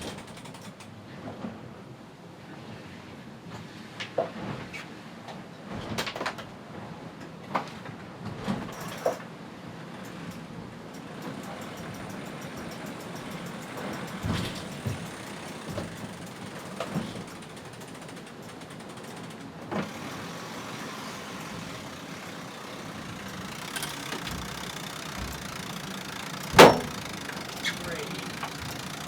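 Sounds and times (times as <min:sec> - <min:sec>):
rushing noise aboard sailboat: 0:06.6 - 0:29.0
deck gear knocks and clunks: 0:11.8 - 0:17.4, 0:23.0 - 0:29.0.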